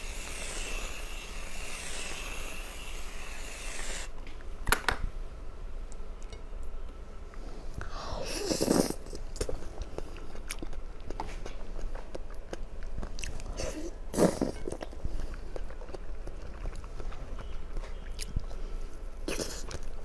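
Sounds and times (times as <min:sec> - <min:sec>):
chewing with wet clicks: 0:09.4 - 0:13.6, 0:14.6 - 0:18.7.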